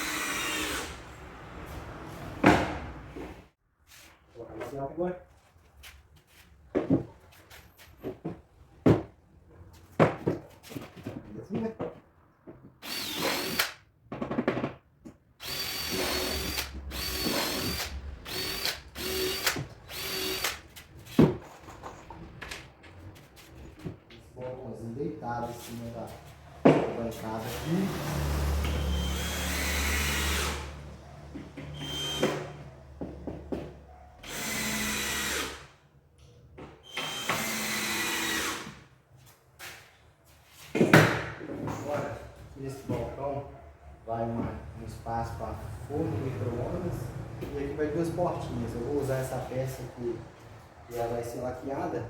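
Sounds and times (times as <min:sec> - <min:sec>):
cordless drill driving screws: 0:00.0 - 0:01.0, 0:12.8 - 0:13.8, 0:15.4 - 0:20.7, 0:27.4 - 0:30.7, 0:31.8 - 0:32.6, 0:34.2 - 0:35.7, 0:36.9 - 0:38.8.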